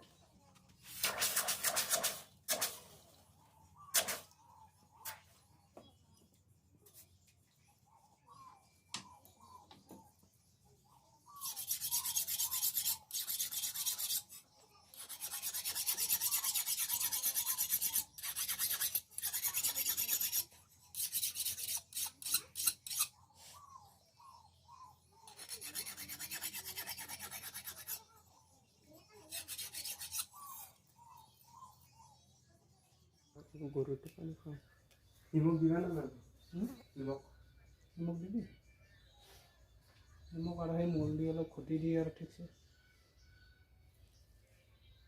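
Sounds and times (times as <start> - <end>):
file rasping on steel blade: 11.4 - 23.2, 25.3 - 28.1, 29.3 - 30.7.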